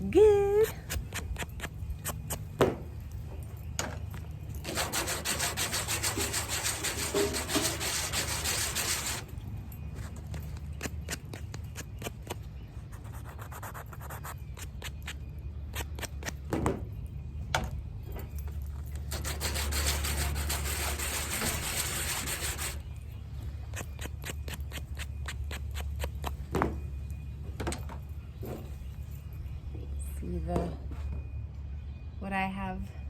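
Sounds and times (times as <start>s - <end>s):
sandpaper rubbing: 4.6s - 9.3s, 11.1s - 16.1s, 19.1s - 22.8s.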